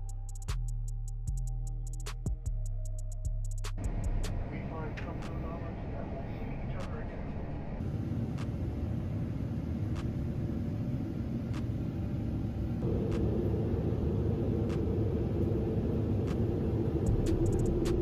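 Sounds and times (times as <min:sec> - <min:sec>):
airplane cabin rumble: 0:03.8 - 0:18.0
steady hum: 0:03.8 - 0:18.0.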